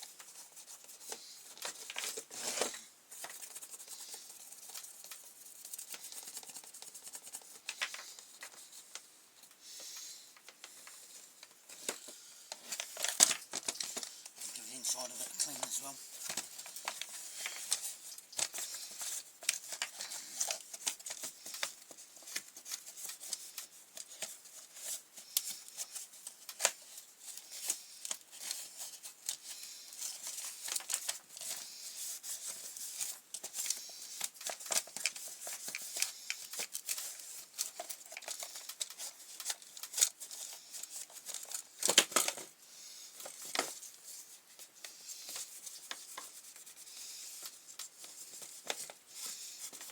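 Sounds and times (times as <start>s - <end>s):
scraping and rubbing plastic: 0.0s - 9.0s.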